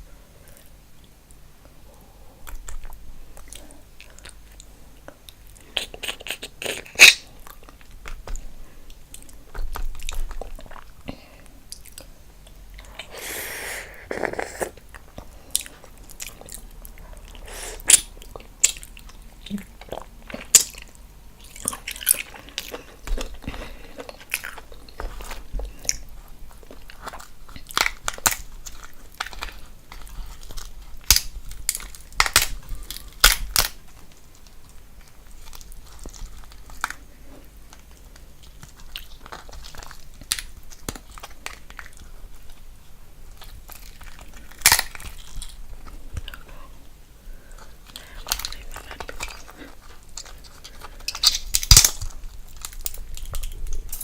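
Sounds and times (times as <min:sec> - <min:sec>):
person chewing food: 0:00.4 - 0:54.0
sharp clicks and crunches: 0:26.6 - 0:37.0, 0:47.8 - 0:54.0.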